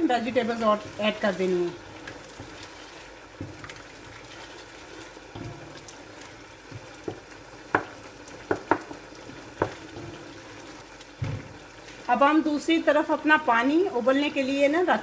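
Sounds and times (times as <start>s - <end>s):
meat sizzling in a pot: 0.0s - 15.0s
wooden spatula knocking on pot: 6.7s - 10.2s.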